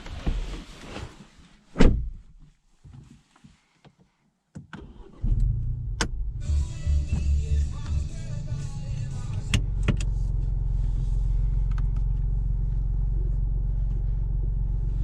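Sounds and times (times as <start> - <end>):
car engine starting and idling: 4.8 - 15.0.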